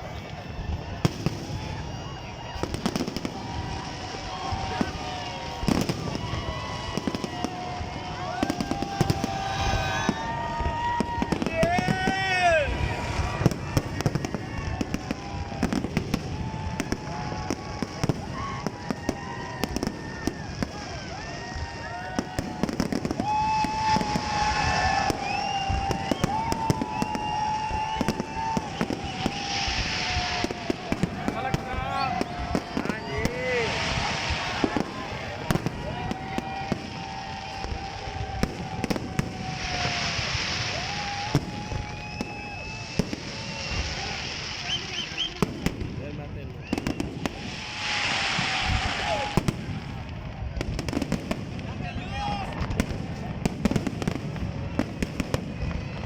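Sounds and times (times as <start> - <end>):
firework bangs and crackles: 0.0 - 56.0
rushing hiss: 23.3 - 31.4, 32.4 - 35.4, 39.3 - 41.7, 42.3 - 45.2, 47.3 - 50.0.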